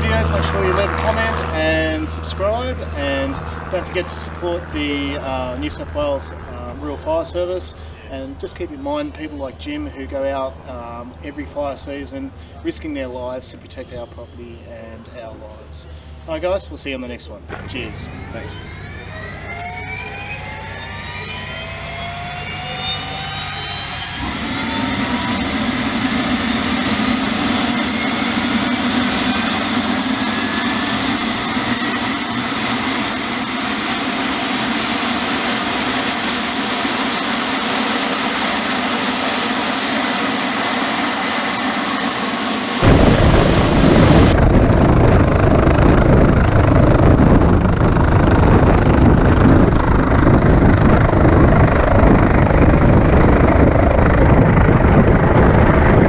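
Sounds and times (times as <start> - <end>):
steady low hum: 0.0 - 32.8, 40.0 - 56.0
helicopter turbine whine: 0.0 - 56.0
loud low rushing noise: 17.5 - 21.1, 40.4 - 56.0.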